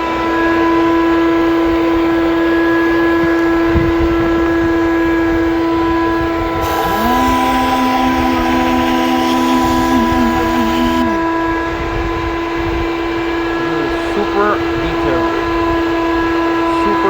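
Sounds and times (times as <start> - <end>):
motor spinning up: 6.1 - 12.5
machine hum: 6.4 - 16.8.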